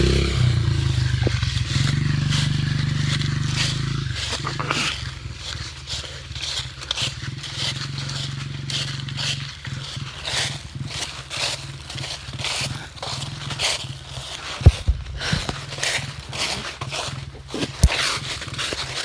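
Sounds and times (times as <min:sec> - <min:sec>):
dirt bike engine idling: 0:00.0 - 0:19.0
heavy panting: 0:14.7 - 0:16.7.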